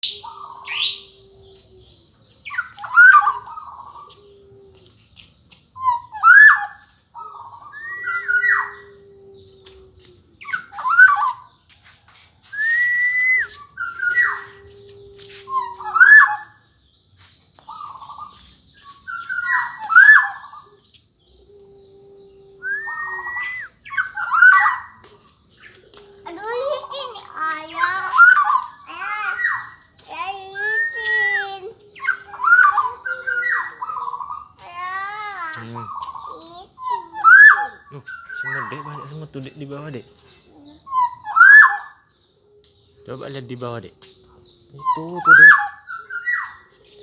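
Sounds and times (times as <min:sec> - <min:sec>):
bird singing fluty whistles: 0:00.0 - 0:01.2, 0:05.8 - 0:08.9, 0:10.4 - 0:11.4, 0:12.4 - 0:14.6, 0:15.5 - 0:16.5, 0:22.5 - 0:25.0, 0:30.6 - 0:34.5, 0:35.9 - 0:40.0, 0:40.9 - 0:42.0, 0:44.7 - 0:46.6.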